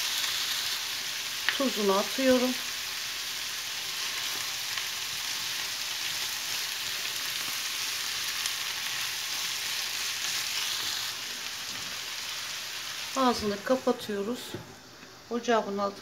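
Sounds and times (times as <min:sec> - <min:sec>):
food sizzling in a frying pan: 0:00.0 - 0:16.0.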